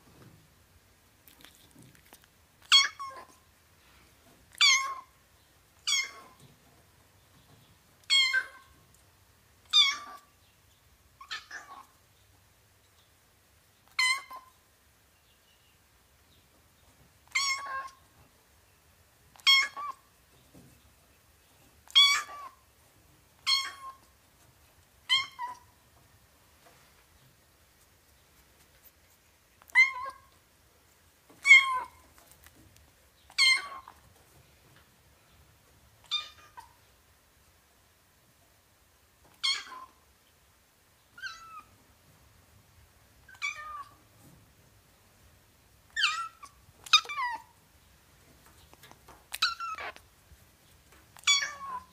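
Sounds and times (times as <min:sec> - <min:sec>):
kitten meowing: 0:17.3 - 0:18.0, 0:23.5 - 0:24.0, 0:46.0 - 0:47.5, 0:49.4 - 0:50.0, 0:51.2 - 0:51.9.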